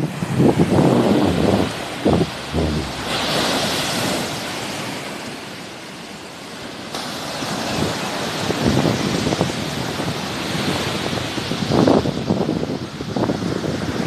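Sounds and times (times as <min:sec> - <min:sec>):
wind buffeting microphone: 0:00.0 - 0:04.4
sea surf washing onto shore: 0:00.0 - 0:14.0.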